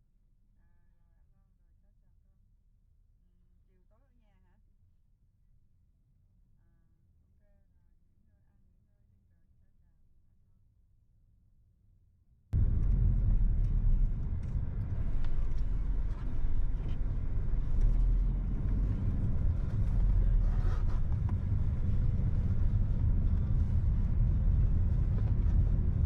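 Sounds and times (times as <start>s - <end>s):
car engine and tyres rumbling: 12.6s - 26.0s.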